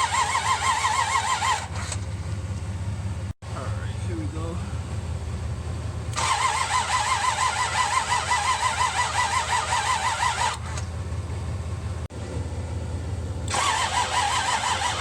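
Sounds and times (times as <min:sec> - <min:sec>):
starter motor cranking engine: 0:00.0 - 0:02.1, 0:06.1 - 0:11.0, 0:13.4 - 0:15.0.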